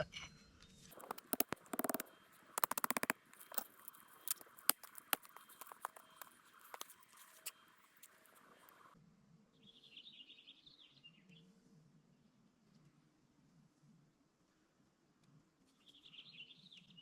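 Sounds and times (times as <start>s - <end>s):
campfire crackling and popping: 1.0s - 8.9s.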